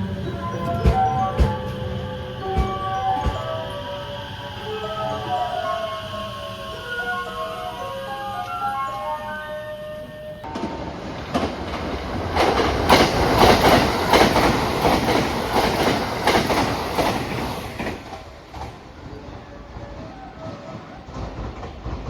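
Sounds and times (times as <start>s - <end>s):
train wheels clacking on rails: 0.0s - 9.1s, 10.4s - 22.0s
electronic chime melody: 0.0s - 10.5s.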